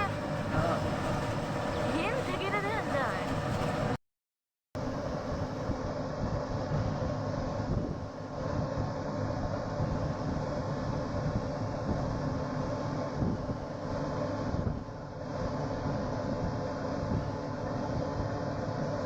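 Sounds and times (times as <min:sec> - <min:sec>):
faint mechanical hum: 0:00.0 - 0:04.0, 0:04.8 - 0:19.0
vehicle rumble: 0:00.0 - 0:04.0.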